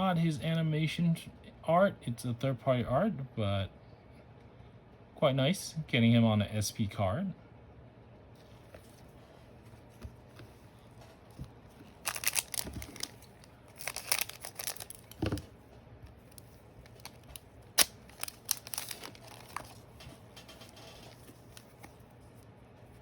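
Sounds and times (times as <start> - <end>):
plastic packaging crinkling: 11.4 - 15.6, 16.2 - 22.5.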